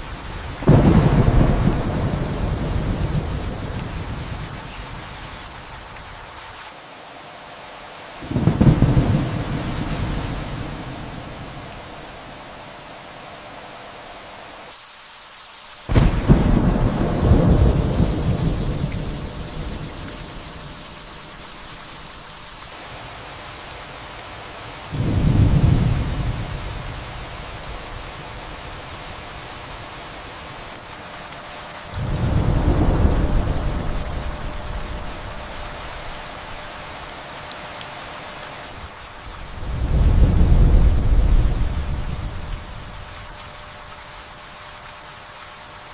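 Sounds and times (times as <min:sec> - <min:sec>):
thunder rumbling: 0:00.0 - 0:06.0, 0:08.2 - 0:12.6, 0:15.9 - 0:22.0, 0:24.9 - 0:29.6, 0:31.9 - 0:36.8, 0:38.8 - 0:43.7
rain falling steadily: 0:00.0 - 0:45.9
loud crack of thunder: 0:00.6 - 0:04.3, 0:08.3 - 0:11.4, 0:15.9 - 0:20.6
sharp water drips: 0:30.6 - 0:44.8.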